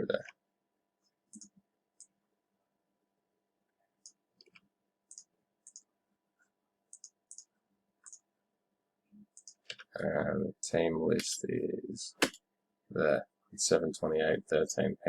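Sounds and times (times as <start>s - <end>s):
faint electrical hum: 0.0s - 15.0s
computer mouse clicks: 1.3s - 2.2s, 4.0s - 5.9s, 6.9s - 8.2s, 9.3s - 9.9s.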